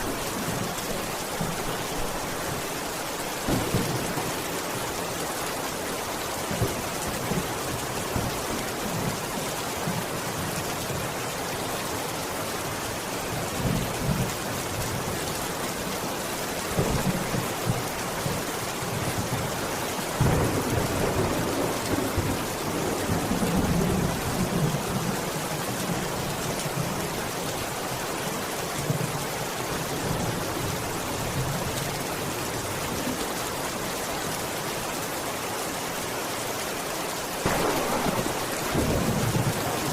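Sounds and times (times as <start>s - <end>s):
steady rain falling: 0.0s - 39.9s
thunder rumbling: 3.5s - 4.7s, 37.4s - 39.9s.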